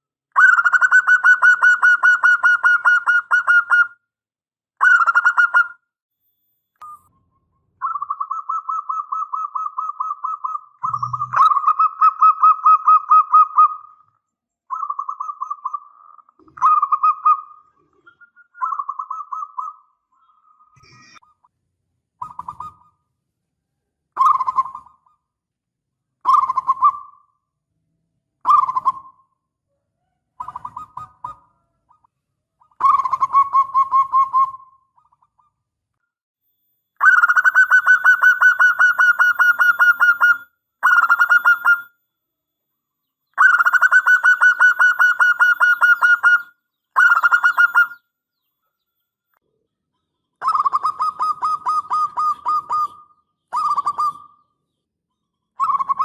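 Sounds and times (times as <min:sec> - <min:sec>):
dove cooing: 0:07.8 - 0:14.0, 0:14.7 - 0:19.9, 0:22.2 - 0:23.0, 0:28.5 - 0:29.2, 0:30.0 - 0:32.1, 0:32.8 - 0:35.2, 0:43.4 - 0:48.0, 0:50.4 - 0:54.5, 0:55.6 - 0:56.0.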